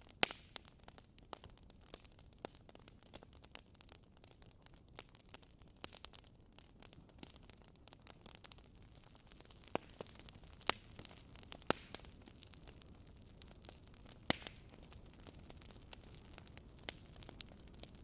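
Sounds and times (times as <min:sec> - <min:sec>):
fire popping: 0:00.0 - 0:18.0
wood fire crackling: 0:00.0 - 0:18.0.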